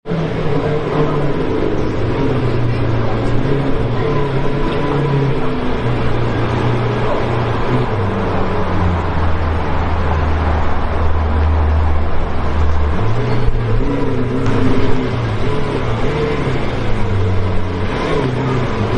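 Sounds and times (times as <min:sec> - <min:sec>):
car engine humming: 0:00.0 - 0:18.9
road noise: 0:00.0 - 0:18.9.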